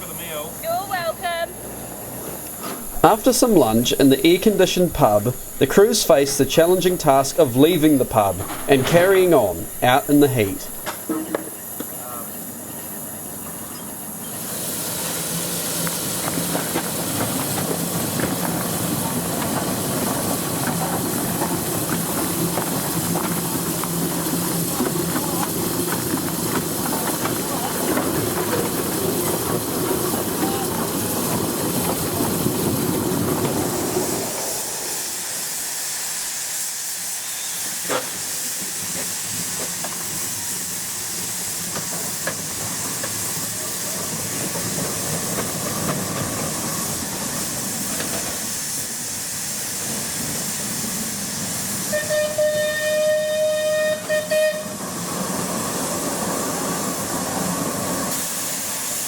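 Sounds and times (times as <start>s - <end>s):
steam engine hissing: 1.6s - 10.9s, 11.5s - 59.0s
steam whistle blast: 51.8s - 54.9s.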